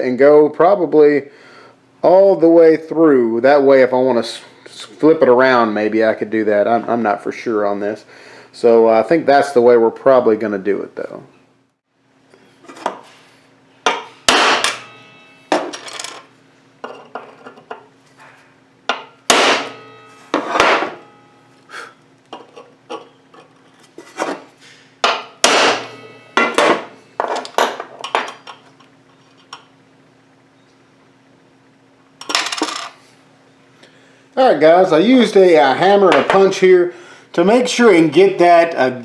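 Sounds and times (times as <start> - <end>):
hammer tapping metal punch: 13.8 - 15.9, 18.9 - 21.4, 25.0 - 28.6.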